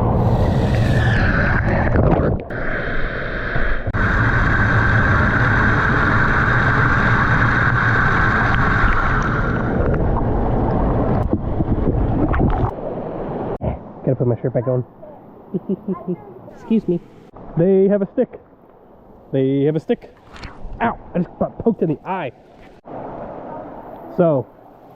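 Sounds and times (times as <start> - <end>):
waterfall pouring into pool: 4.0 - 9.9.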